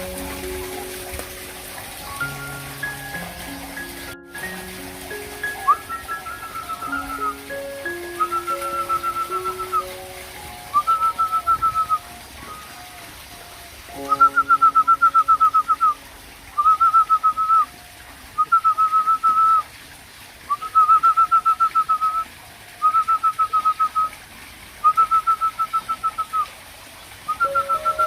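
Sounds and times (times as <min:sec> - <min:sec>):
chicks whistled begging calls: 0:05.5 - 0:10.0, 0:10.7 - 0:12.8.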